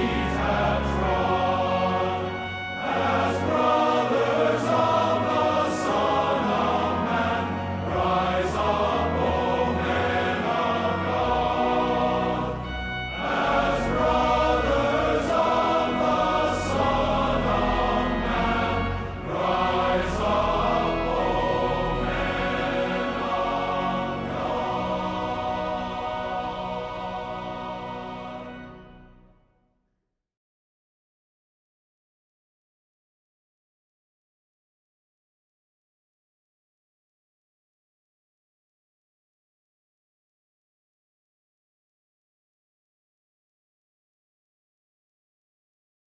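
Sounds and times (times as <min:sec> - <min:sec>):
choir singing a slow hymn: 0:00.0 - 0:29.0
instrumental accompaniment: 0:00.0 - 0:29.3.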